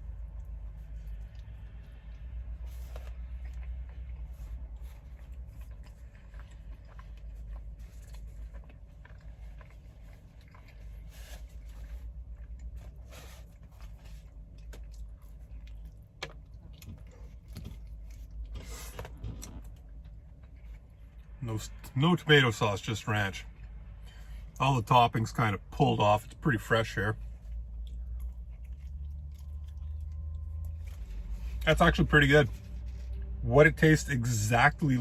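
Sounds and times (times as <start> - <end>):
man chewing pizza: 0.0 - 35.0
steady low hum: 0.0 - 35.0.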